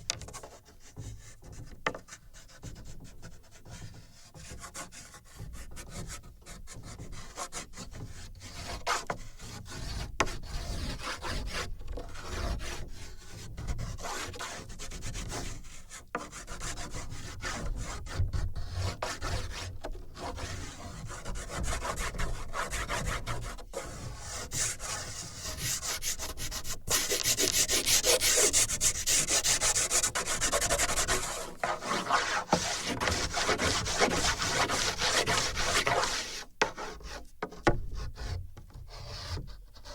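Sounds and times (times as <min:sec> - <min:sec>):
drawing tool scratching on paper: 0:20.2 - 0:37.2.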